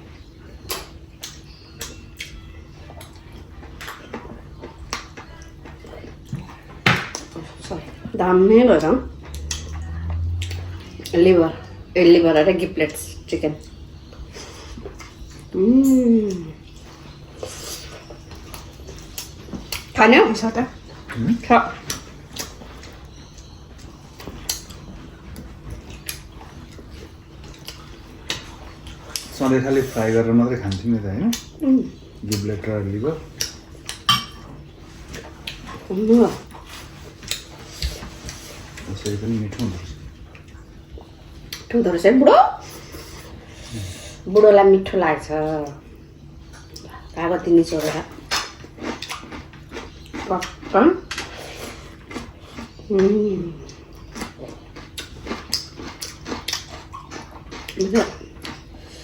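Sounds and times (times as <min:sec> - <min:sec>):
person chewing food: 0:00.0 - 0:08.2, 0:08.8 - 0:11.9, 0:13.6 - 0:41.7, 0:45.9 - 0:47.2, 0:47.8 - 0:59.0
faint low hum: 0:00.0 - 0:59.0
eating clicks and smacks: 0:00.6 - 0:07.8, 0:08.8 - 0:11.8, 0:18.0 - 0:29.4, 0:30.7 - 0:31.6, 0:32.2 - 0:32.6, 0:33.3 - 0:34.1, 0:35.2 - 0:35.8, 0:37.2 - 0:41.7, 0:47.9 - 0:51.4, 0:52.0 - 0:58.8.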